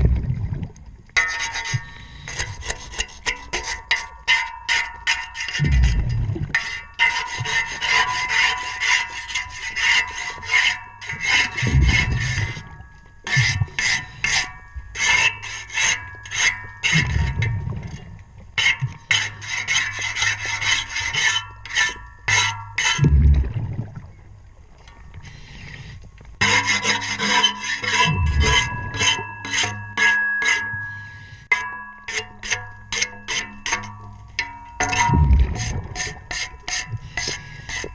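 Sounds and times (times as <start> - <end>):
air bubbles rumbling: 0.0 - 1.1, 5.6 - 6.6, 11.6 - 12.8, 17.0 - 18.4, 23.0 - 25.2, 28.1 - 29.0, 34.9 - 36.3
scraping metal propeller underwater: 0.0 - 37.9.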